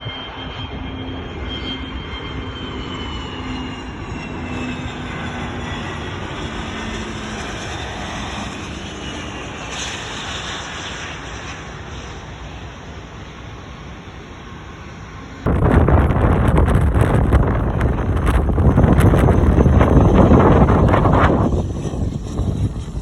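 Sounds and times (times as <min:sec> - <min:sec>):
jet engine whine: 0:00.0 - 0:23.0
wind noise on microphone: 0:15.4 - 0:23.0.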